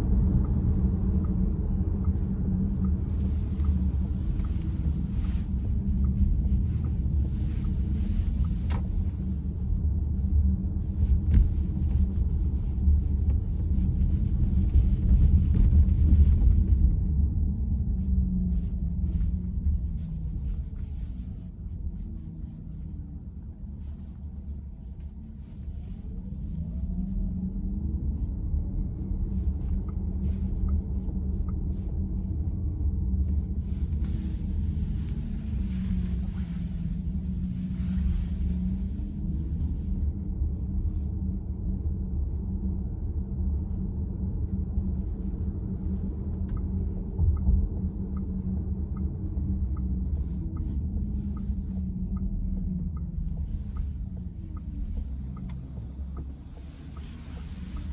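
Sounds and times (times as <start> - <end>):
car engine and tyres rumbling: 0.0 - 57.9.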